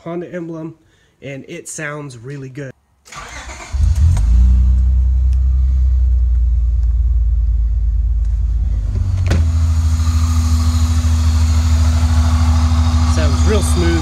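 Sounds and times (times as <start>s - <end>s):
car engine idling: 4.7s - 14.0s.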